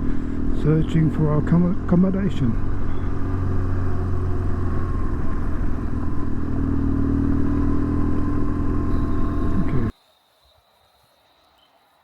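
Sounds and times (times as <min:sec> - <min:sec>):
motorcycle engine running: 0:00.0 - 0:09.9.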